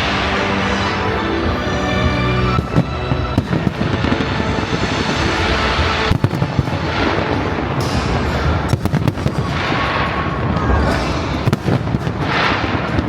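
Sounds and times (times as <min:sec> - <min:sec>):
fireworks booms and bangs: 0:03.4 - 0:13.0
fireworks crackling: 0:03.4 - 0:13.0.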